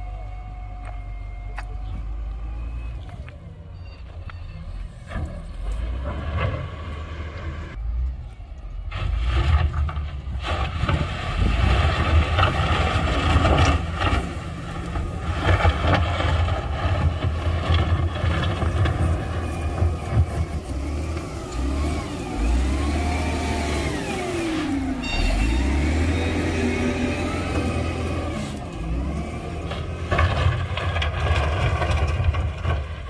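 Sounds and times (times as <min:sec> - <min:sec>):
diesel machinery engine rumble: 0:00.0 - 0:33.0
noisy clatter: 0:09.0 - 0:20.7, 0:29.6 - 0:33.0.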